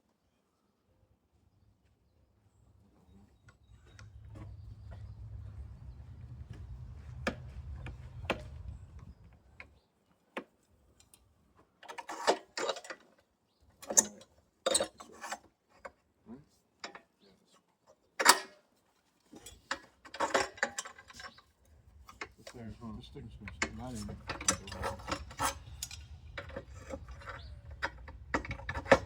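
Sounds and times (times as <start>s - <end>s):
low hum: 3.6s - 9.6s, 23.1s - 29.0s.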